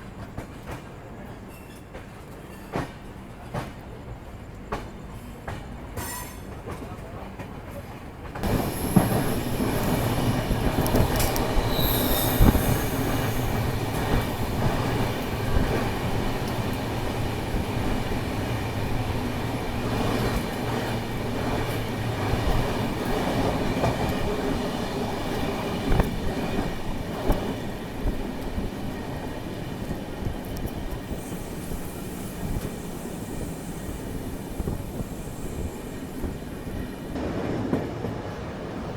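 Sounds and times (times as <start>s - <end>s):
train wheels rumbling on rails: 0.0s - 38.9s
train wheel squeals: 1.3s - 3.1s, 4.7s - 6.8s, 8.4s - 16.7s, 30.7s - 37.2s.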